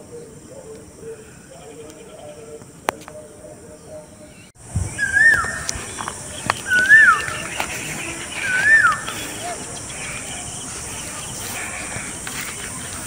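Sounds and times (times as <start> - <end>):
bird whistled call: 4.8 - 11.7.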